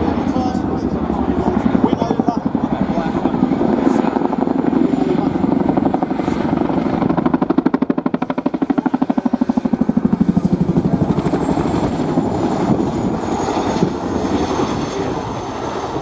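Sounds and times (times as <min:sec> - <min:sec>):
helicopter rotor blades thumping: 0:00.0 - 0:16.0
high turbine whine: 0:00.0 - 0:16.0.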